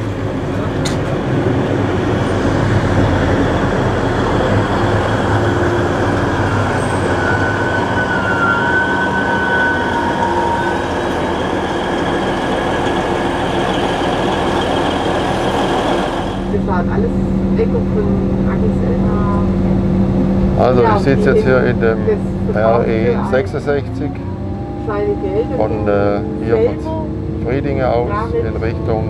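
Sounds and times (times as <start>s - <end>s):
diesel train engines running: 0.0s - 29.0s
train wheels rumbling: 0.0s - 29.0s
thin brake squeal: 6.5s - 16.1s.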